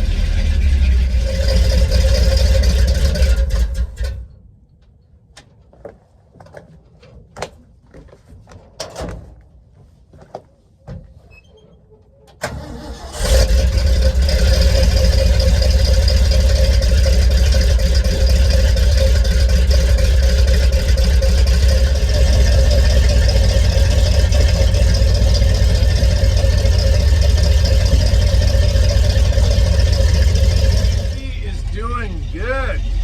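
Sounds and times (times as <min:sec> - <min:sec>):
truck engine starting and idling: 0:00.0 - 0:04.6, 0:12.3 - 0:33.0.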